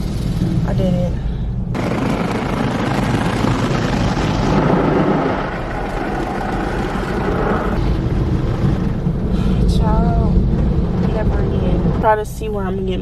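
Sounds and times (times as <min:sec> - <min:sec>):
rush of air with low rumble: 0:00.0 - 0:12.3.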